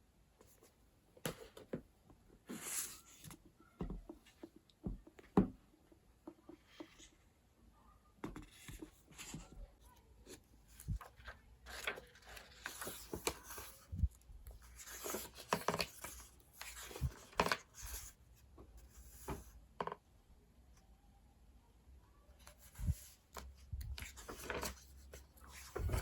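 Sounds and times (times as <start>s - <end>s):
paper rustling: 10.3s - 18.1s, 22.5s - 26.0s.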